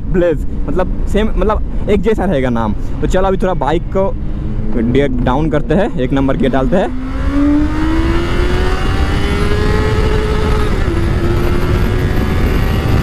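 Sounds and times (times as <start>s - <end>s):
motorcycle engine accelerating: 3.4s - 13.0s.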